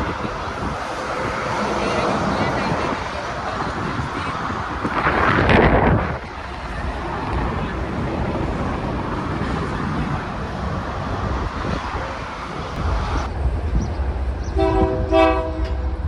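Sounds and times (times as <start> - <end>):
steady rushing noise: 0.0 - 14.6
locomotive air horn blasts: 14.6 - 15.8.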